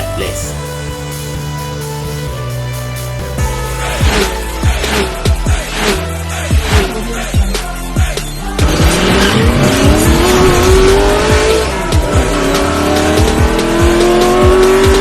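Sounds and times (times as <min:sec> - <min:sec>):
electronic beat music: 0:00.0 - 0:15.0
car engine revving effect: 0:03.5 - 0:15.0.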